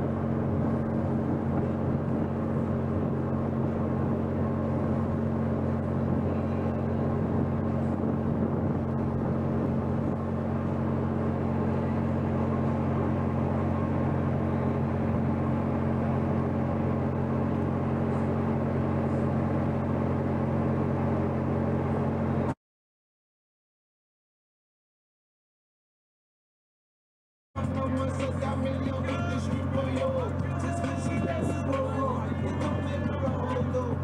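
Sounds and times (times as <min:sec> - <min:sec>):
ship engines droning: 0:00.0 - 0:22.6, 0:27.6 - 0:34.0.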